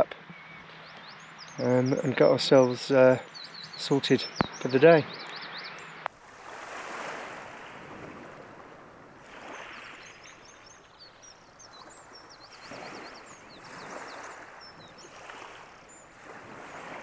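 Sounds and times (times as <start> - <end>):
birds chirping and trilling: 0.0 - 6.1, 8.9 - 17.0
surf washing on beach: 6.1 - 17.0.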